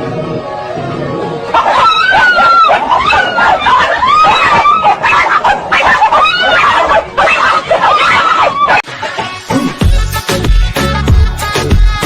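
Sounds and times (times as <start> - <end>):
music: 0.0 - 3.7, 6.2 - 12.0.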